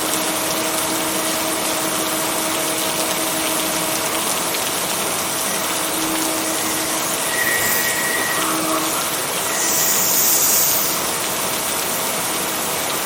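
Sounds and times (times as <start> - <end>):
heavy rain: 0.0 - 13.0
low steady tones: 5.1 - 11.2.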